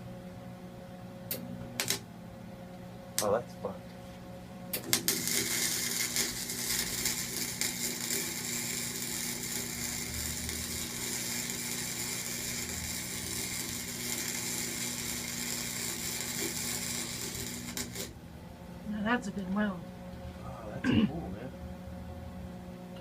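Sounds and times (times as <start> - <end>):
low electrical hum: 0.0 - 23.0
welder arc crackling and hissing: 1.2 - 2.0, 3.2 - 18.2.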